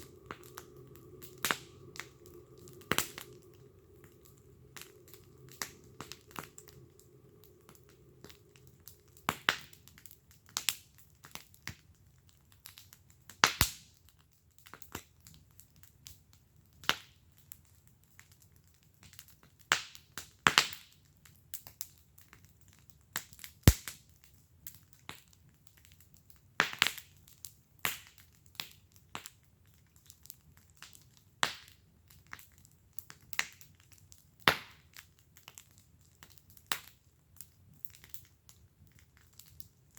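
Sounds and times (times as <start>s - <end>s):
faint low rumble: 0.0s - 10.8s
wood fire crackling: 0.0s - 39.9s.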